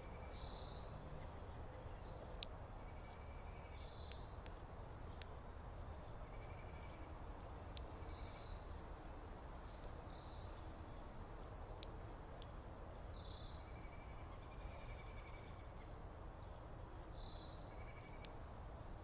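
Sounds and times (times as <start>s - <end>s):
steady low rumble: 0.0s - 19.0s
sharp ticks: 4.0s - 5.4s, 11.8s - 12.6s.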